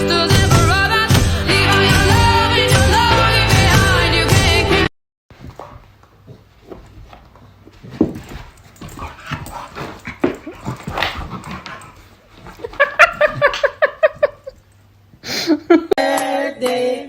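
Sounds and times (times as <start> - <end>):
music with singing: 0.0 - 4.9, 16.0 - 17.0
scuffling and clicking: 5.4 - 14.6.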